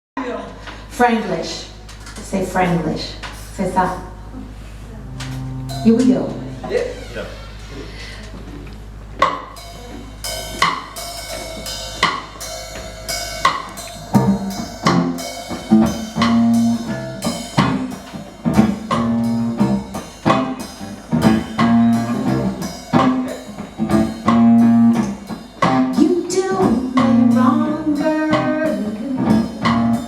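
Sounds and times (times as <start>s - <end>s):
guitar: 0.7s - 7.8s, 8.6s - 30.0s
bass guitar: 1.4s - 30.0s
drum kit: 1.7s - 8.3s, 9.0s - 30.0s.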